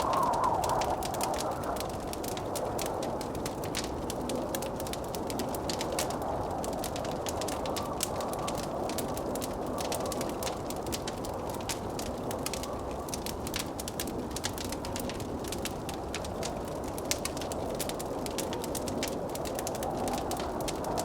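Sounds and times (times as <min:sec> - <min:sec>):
blizzard wind rushing: 0:00.0 - 0:13.3
wood fire crackling: 0:00.0 - 0:21.0.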